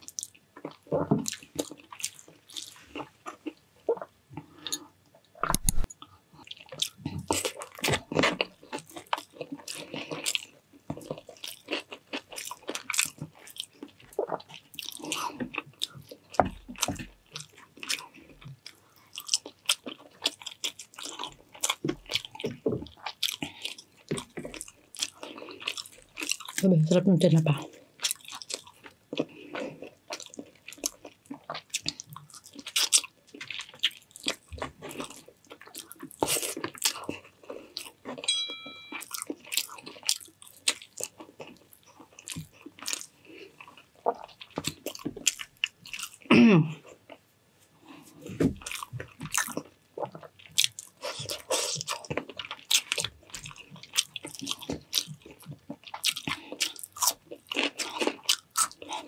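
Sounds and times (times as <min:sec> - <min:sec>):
crunchy chewing: 0:00.0 - 0:04.9, 0:05.5 - 0:26.6, 0:27.7 - 0:38.3, 0:38.9 - 0:47.2, 0:48.6 - 0:59.0
ringing clink: 0:38.3 - 0:39.1.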